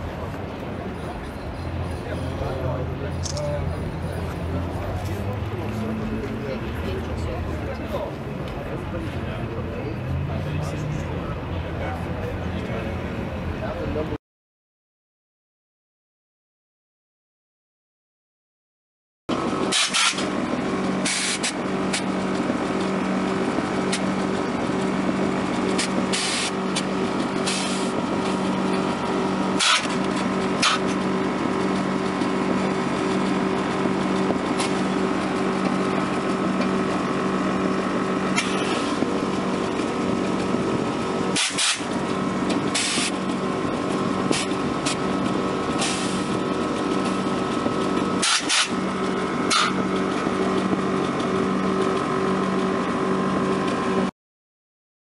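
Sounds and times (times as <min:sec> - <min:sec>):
car engine idling: 0:00.0 - 0:14.2, 0:19.3 - 0:54.1
short clicks: 0:03.2 - 0:03.5.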